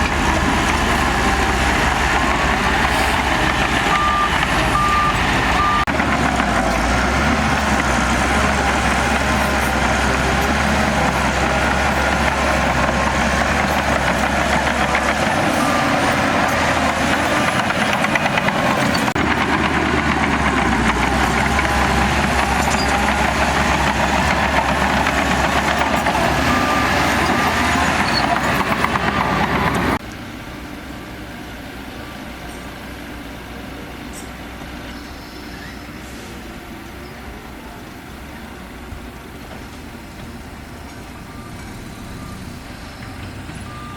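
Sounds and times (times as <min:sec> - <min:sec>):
heavy diesel engine running: 0:00.0 - 0:43.9
reversing alarm beeping: 0:02.2 - 0:05.9, 0:21.2 - 0:30.0, 0:41.0 - 0:43.9.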